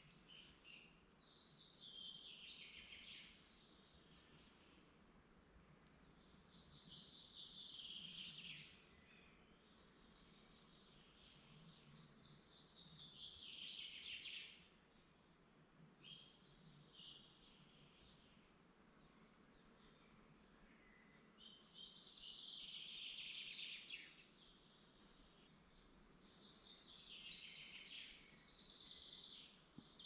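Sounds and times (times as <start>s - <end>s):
faint woodland hush: 0.0s - 30.0s
songbird singing: 0.0s - 30.0s.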